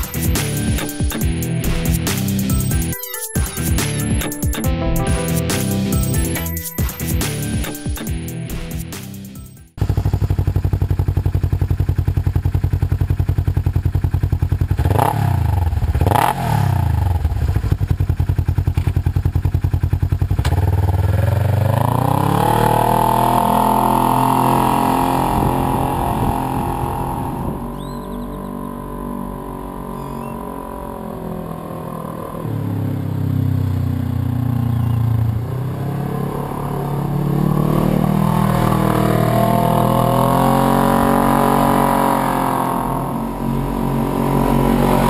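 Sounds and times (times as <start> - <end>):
engine revving: 14.7 - 17.8, 20.2 - 45.0.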